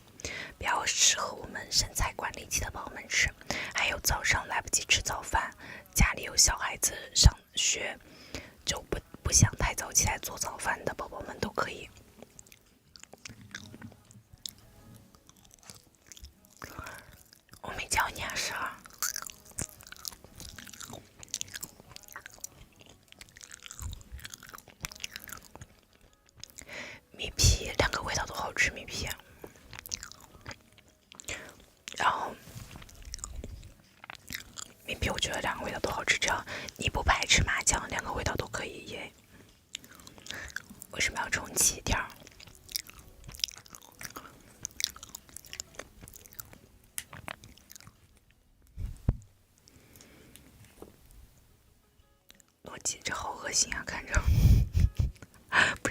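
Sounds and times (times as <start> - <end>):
chewing and mouth smacks: 11.9 - 17.7, 18.6 - 26.7, 29.1 - 38.0, 39.7 - 50.8.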